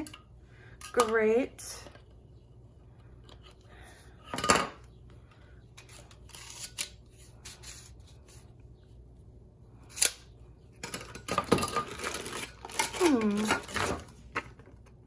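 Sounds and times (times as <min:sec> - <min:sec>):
metal parts clattering: 0:10.8 - 0:14.0.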